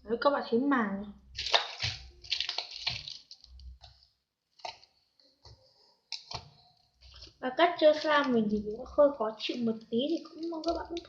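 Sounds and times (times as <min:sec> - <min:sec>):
slime clicking and popping: 0:01.3 - 0:04.0, 0:06.1 - 0:06.6, 0:10.0 - 0:11.0.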